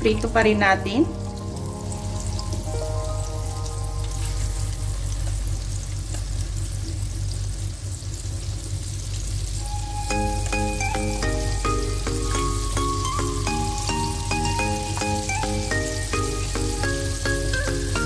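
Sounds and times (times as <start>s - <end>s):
background music with short notes: 0.0s - 5.9s, 9.6s - 18.0s
calamari deep-frying in oil: 0.0s - 18.0s.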